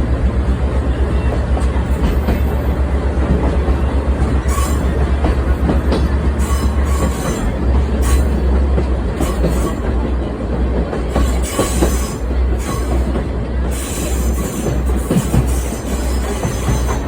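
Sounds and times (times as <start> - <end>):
trolley train rumbling on rails: 0.0 - 17.0.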